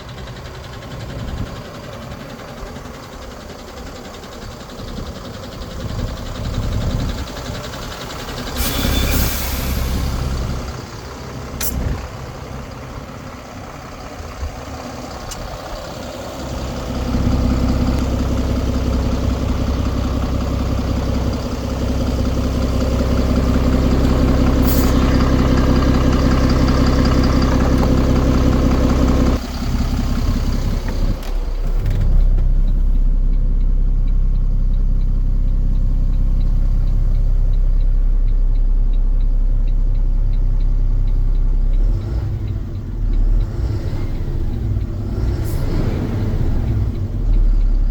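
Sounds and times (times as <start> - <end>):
truck diesel engine running: 0.0 - 47.9
air brake hisses: 8.4 - 10.8, 11.6 - 12.0, 24.6 - 25.2.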